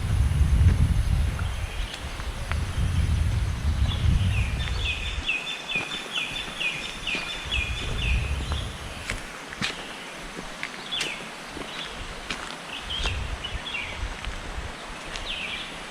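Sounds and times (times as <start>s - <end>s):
low rumble: 0.0s - 5.2s.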